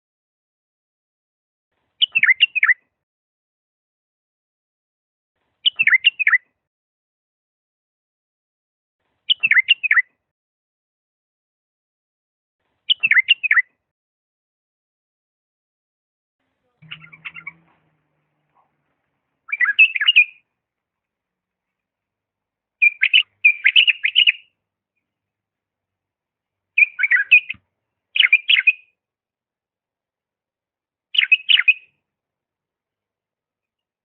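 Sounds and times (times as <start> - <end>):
bird singing warbled phrases: 2.0 - 2.8, 5.6 - 6.5, 9.3 - 10.1, 12.9 - 13.7, 16.6 - 20.5, 22.8 - 25.1, 26.7 - 29.0, 31.1 - 32.0.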